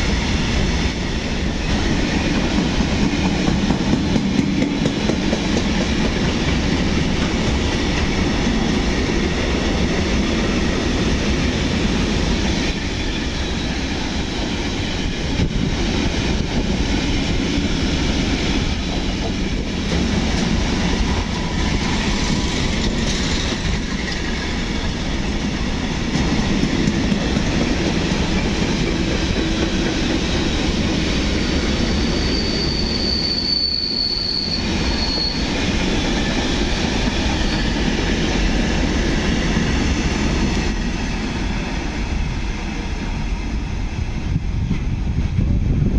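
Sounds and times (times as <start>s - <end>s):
train wheels clacking over rail joints: 1.7s - 9.0s, 18.2s - 31.8s
high-pitched wheel squeal: 31.9s - 35.6s, 37.3s - 37.9s.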